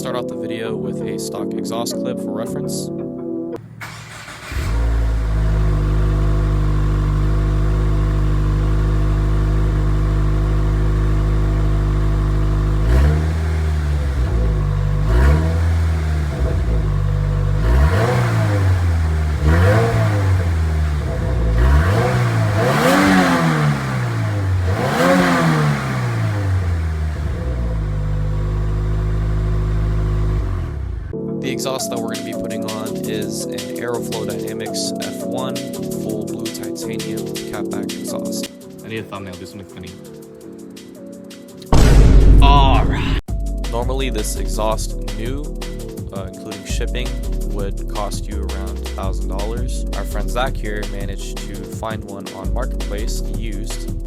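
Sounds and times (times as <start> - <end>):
car engine idling and revving: 3.6 - 31.2.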